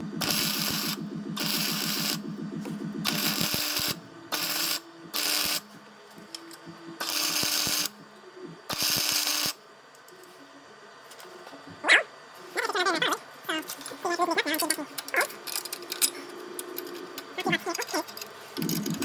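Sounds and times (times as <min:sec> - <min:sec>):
welder arc crackling: 0:00.0 - 0:09.6, 0:13.7 - 0:19.0.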